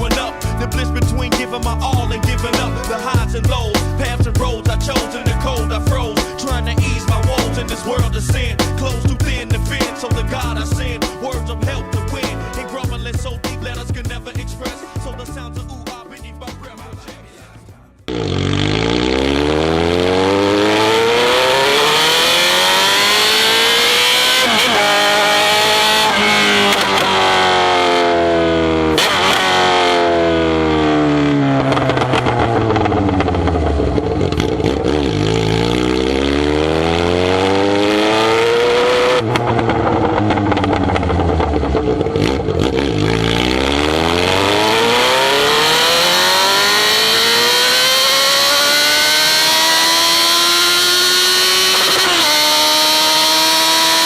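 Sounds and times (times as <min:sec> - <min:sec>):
motorcycle engine revving: 0:18.1 - 0:54.0.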